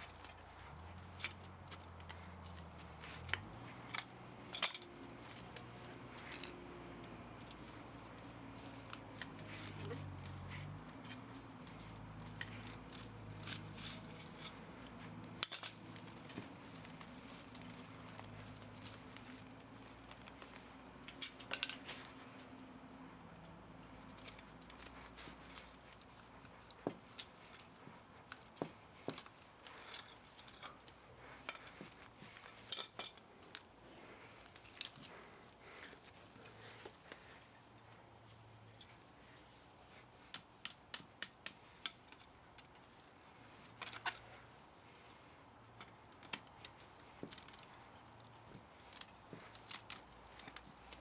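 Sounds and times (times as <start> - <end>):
hand tools clinking on metal: 0.0 - 22.5, 23.4 - 37.9.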